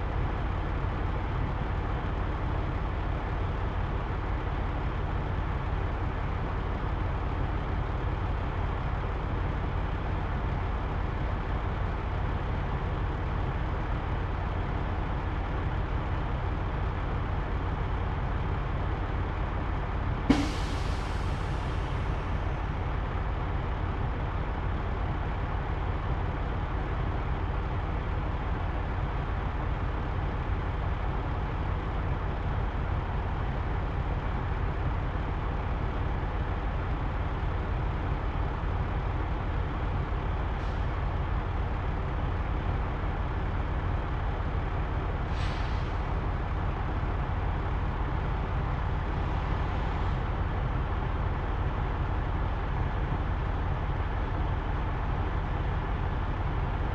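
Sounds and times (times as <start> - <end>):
diesel truck engine idling: 0.0 - 56.9
short air hisses: 20.3 - 21.4, 45.3 - 45.9.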